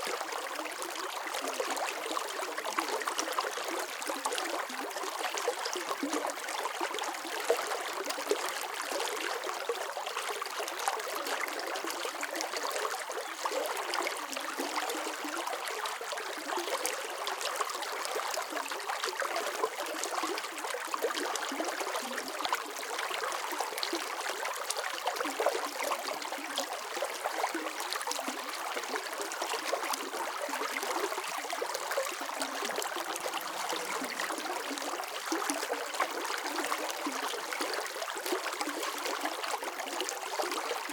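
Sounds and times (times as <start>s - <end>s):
water flowing in stream: 0.0s - 40.9s.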